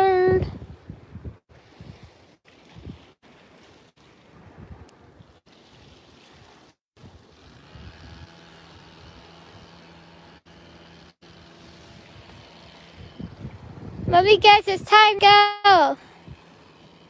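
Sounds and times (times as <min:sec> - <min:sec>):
wind on microphone: 0:00.0 - 0:03.2, 0:04.1 - 0:08.4, 0:11.8 - 0:15.1
water: 0:00.0 - 0:17.0
faint steady motor hum: 0:02.6 - 0:17.0.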